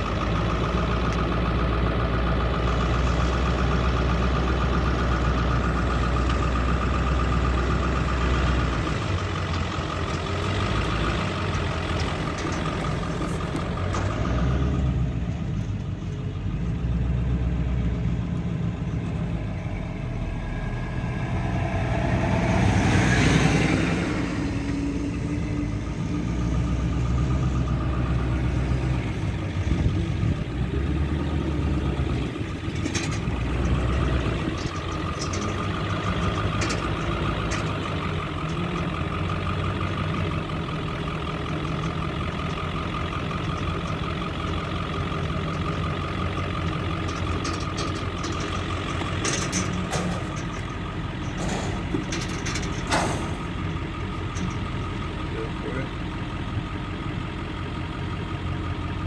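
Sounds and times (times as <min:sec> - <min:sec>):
heavy machinery engines: 0:00.0 - 0:59.0.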